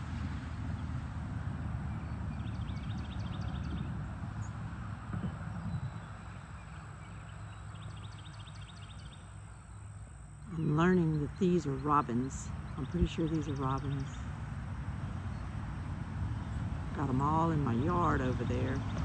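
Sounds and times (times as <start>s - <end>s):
songbird rapid trill: 5.6s - 14.3s.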